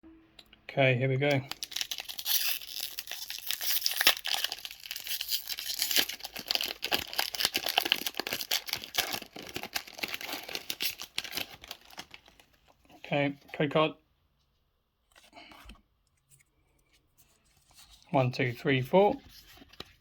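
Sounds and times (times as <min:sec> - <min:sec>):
foil wrapper tearing and crinkling: 0:01.3 - 0:12.5.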